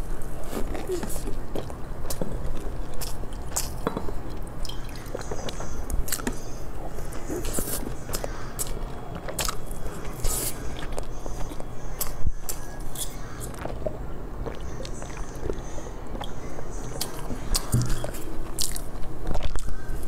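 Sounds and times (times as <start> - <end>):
low steady hum: 0.0 - 20.0
person biting and chewing cake: 7.0 - 15.6.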